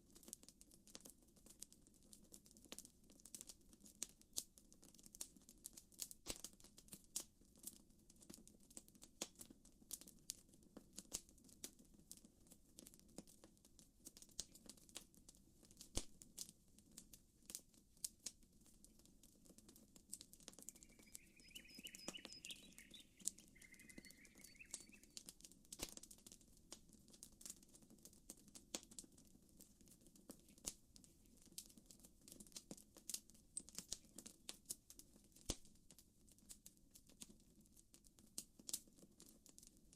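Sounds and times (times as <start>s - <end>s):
bird chirping: 20.5s - 25.3s.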